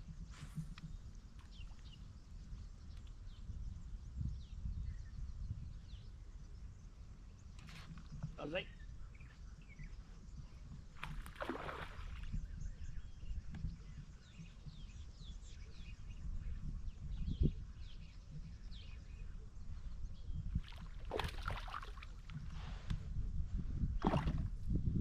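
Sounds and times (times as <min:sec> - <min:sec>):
wind and water rumble: 0:00.0 - 0:25.0.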